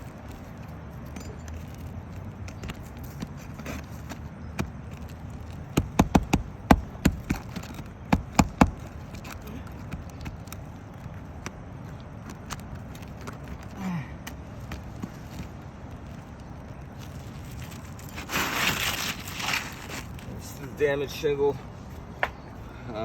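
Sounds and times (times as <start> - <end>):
hand tool tapping on shingle roof: 2.4 - 13.6.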